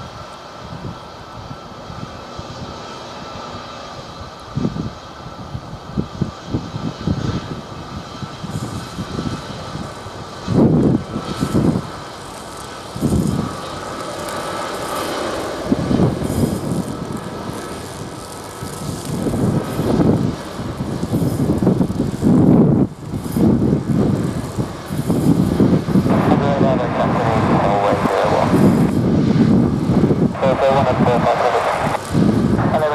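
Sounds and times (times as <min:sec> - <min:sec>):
jet engines whining: 0:00.0 - 0:32.9
wind buffeting microphone: 0:00.0 - 0:32.9.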